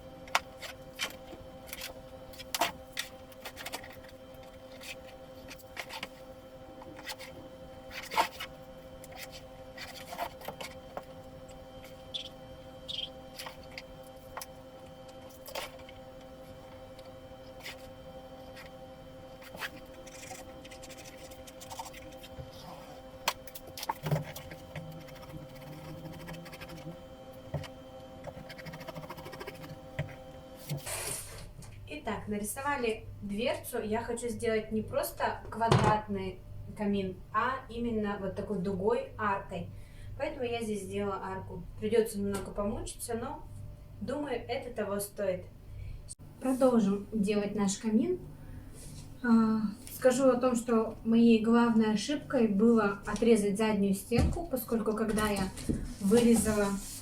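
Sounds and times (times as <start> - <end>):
steady background hum: 0.0 - 57.0
drawing strokes on cardboard: 24.3 - 27.0, 28.4 - 30.2.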